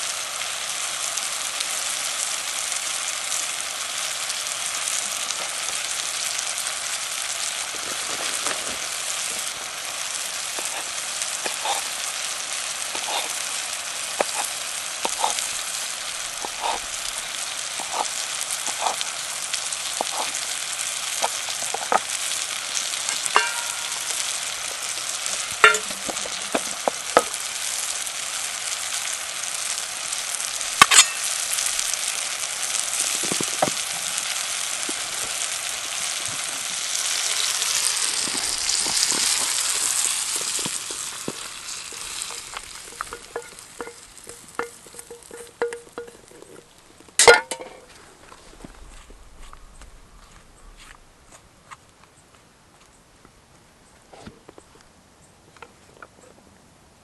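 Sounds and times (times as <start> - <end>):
food sizzling in a pan: 0.0 - 49.6
taps and clicks of stirring: 41.3 - 46.4.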